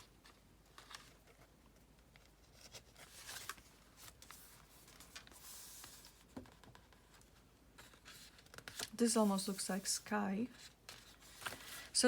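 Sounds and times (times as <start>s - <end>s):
paper pages rustling: 0.0s - 12.0s
soft swish of a page: 3.1s - 6.2s, 8.0s - 12.0s.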